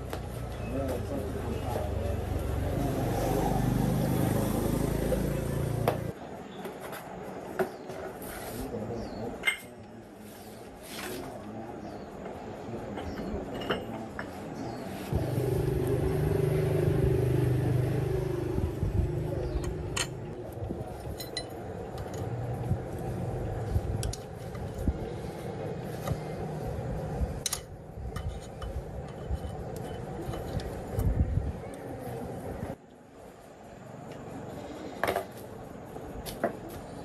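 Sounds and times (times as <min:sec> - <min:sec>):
tractor engine running: 0:15.1 - 0:20.9
metallic clinks and knocks: 0:19.6 - 0:20.3, 0:21.0 - 0:22.4.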